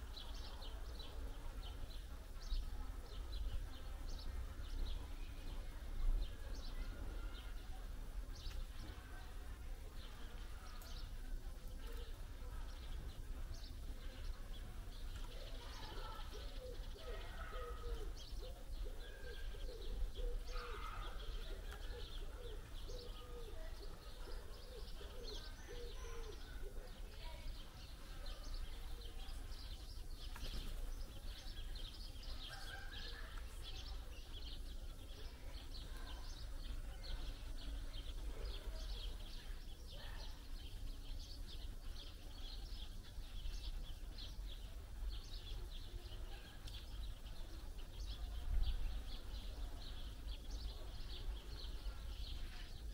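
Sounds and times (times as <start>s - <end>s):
small birds chirping: 0.0s - 52.9s
pigeon cooing: 16.0s - 26.9s.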